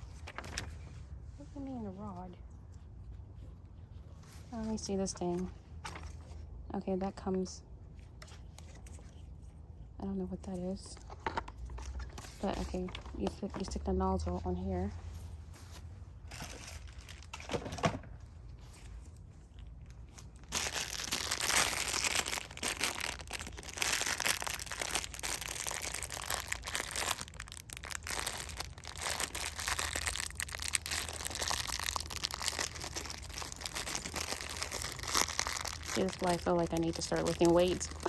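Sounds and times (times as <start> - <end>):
plastic crinkling: 16.3 - 17.5, 19.5 - 38.0.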